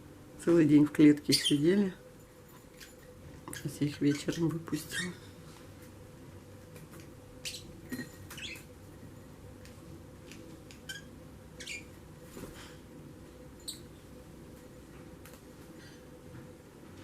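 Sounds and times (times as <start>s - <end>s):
lovebirds chirping: 1.3s - 1.9s, 7.4s - 8.7s, 10.8s - 12.0s.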